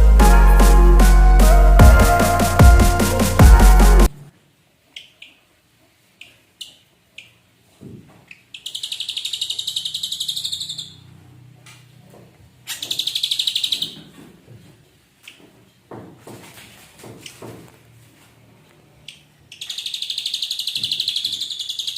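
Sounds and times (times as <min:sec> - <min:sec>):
bird singing rattling trills: 0:08.6 - 0:11.0, 0:12.7 - 0:14.0, 0:19.6 - 0:21.9.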